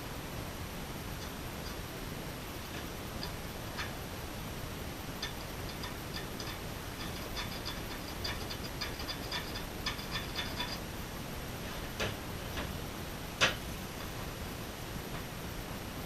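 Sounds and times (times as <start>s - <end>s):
metal tools clicking: 5.2s - 10.8s.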